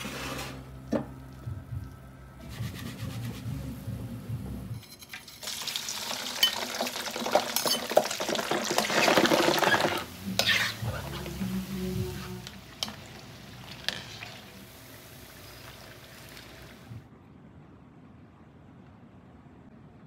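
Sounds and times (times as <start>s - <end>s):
mussels sizzling in hot oil: 5.2s - 16.8s.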